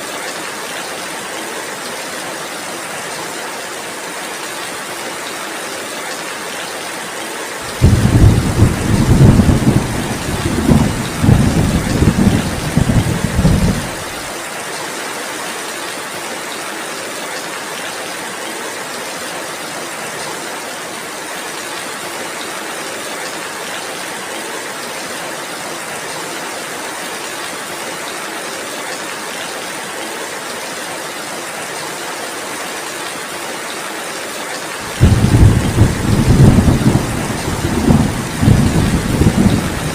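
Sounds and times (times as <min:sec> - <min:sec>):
heavy rain: 0:00.0 - 0:39.9
thunder rumbling: 0:07.7 - 0:14.3, 0:34.9 - 0:39.9.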